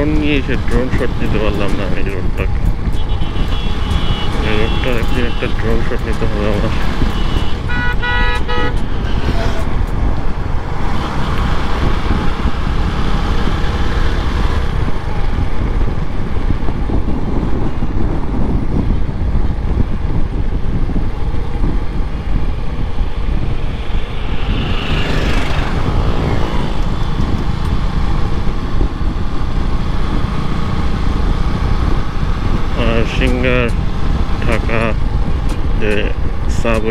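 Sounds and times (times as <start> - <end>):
motorcycle road rumble: 0.0 - 36.9
vehicle passing: 21.6 - 36.3.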